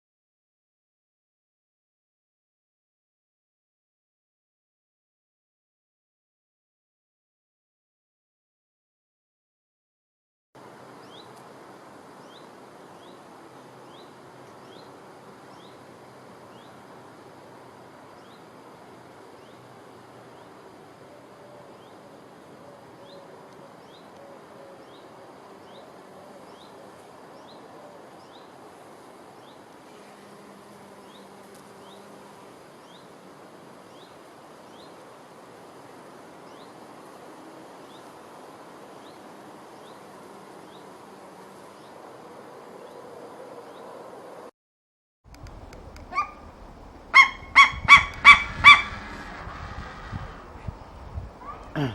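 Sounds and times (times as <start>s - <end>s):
steady hiss: 10.6s - 43.3s, 45.4s - 51.9s
faint buzzing: 45.3s - 51.9s.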